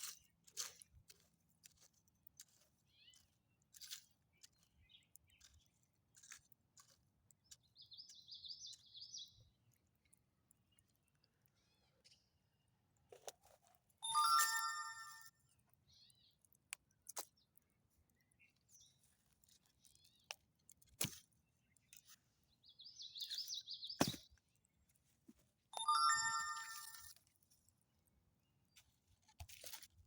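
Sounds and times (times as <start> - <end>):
bell-like ringing tones: 14.0 - 15.3, 25.8 - 27.1.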